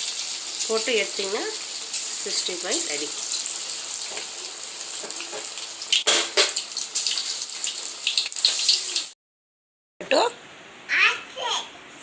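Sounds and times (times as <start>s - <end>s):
chicken deep-frying in hot oil: 0.0s - 9.2s.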